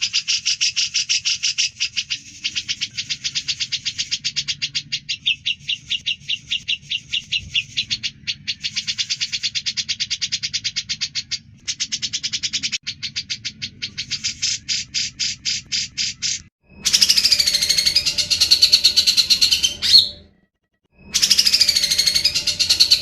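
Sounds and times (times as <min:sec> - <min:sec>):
bird chattering high sharp notes: 0:08.6 - 0:20.3, 0:21.0 - 0:23.0.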